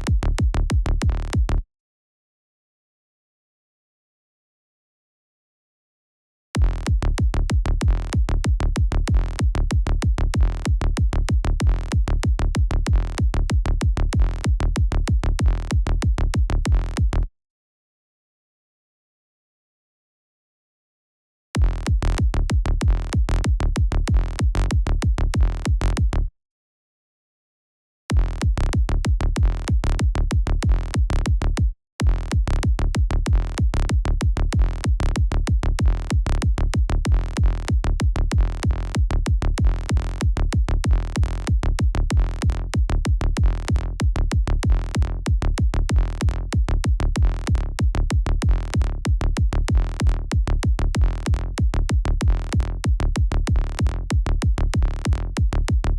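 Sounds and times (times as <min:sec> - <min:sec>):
electronic kick drum: 0:00.0 - 0:01.6, 0:06.6 - 0:17.3, 0:21.6 - 0:26.1, 0:28.1 - 0:55.9
synth bass loop: 0:06.6 - 0:17.3, 0:21.6 - 0:26.2, 0:28.2 - 0:55.9.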